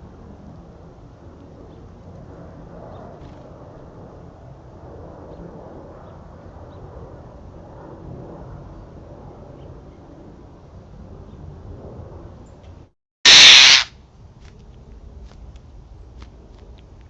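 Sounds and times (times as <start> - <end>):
faint bird chirps: 13.3 - 13.9.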